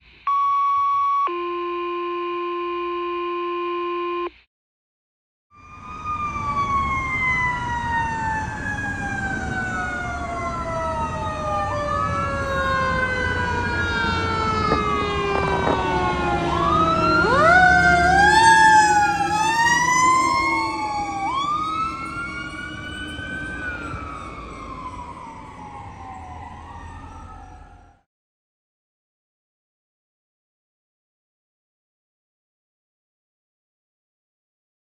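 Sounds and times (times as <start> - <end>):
mechanical siren winding down: 0.2 - 4.3, 5.6 - 28.0
electronic sirens wailing and yelping: 0.3 - 4.3, 5.6 - 28.0.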